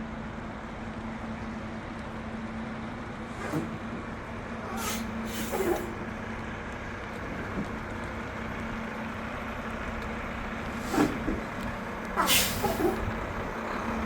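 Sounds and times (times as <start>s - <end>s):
truck engine idling: 0.1s - 14.0s
air brake hiss: 4.6s - 6.0s, 10.7s - 11.4s, 12.2s - 13.2s.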